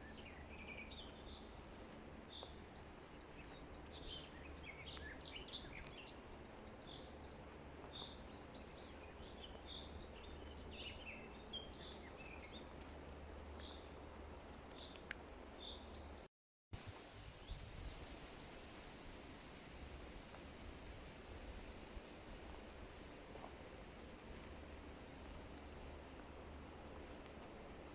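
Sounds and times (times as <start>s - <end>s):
low rumble and hiss: 0.0s - 16.2s, 16.8s - 27.9s
songbirds chirping: 0.0s - 16.3s, 17.3s - 27.9s.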